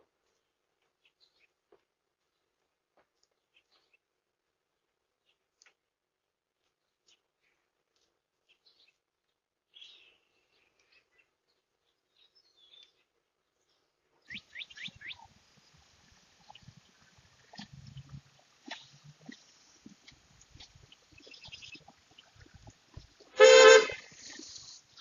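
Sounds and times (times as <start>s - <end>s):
faint bird chirps: 14.3s - 19.4s
soft low thumps: 14.7s - 23.3s.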